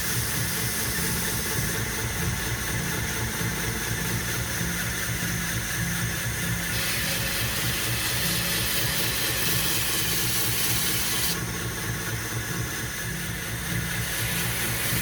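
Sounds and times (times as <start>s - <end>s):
belt grinder motor humming: 6.7s - 11.5s, 13.5s - 15.0s.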